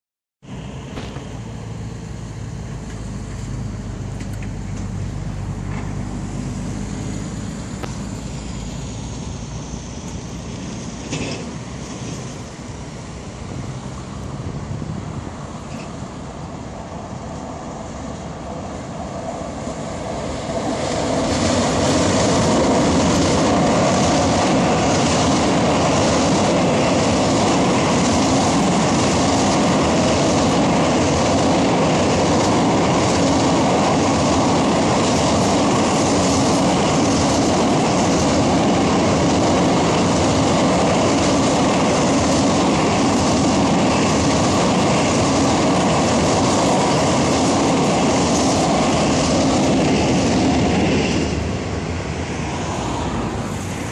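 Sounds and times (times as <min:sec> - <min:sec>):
freight train rumbling past: 0:00.4 - 0:53.9
wheels clacking on rails: 0:10.0 - 0:12.6, 0:15.5 - 0:16.2, 0:18.1 - 0:51.9.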